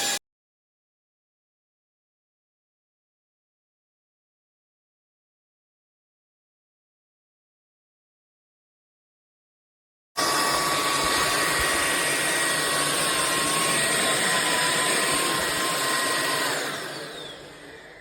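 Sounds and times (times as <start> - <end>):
stick vacuum motor whine: 0.0 - 0.2, 10.2 - 18.0.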